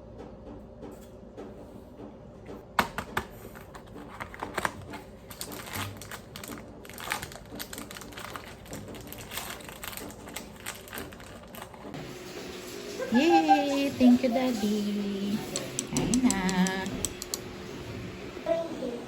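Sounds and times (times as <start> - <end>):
crinkling and rustling: 3.4 - 12.0.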